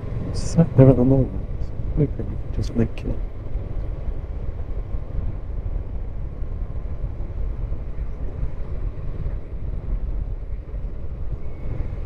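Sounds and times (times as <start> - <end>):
low wind rumble on microphone: 0.0 - 12.0.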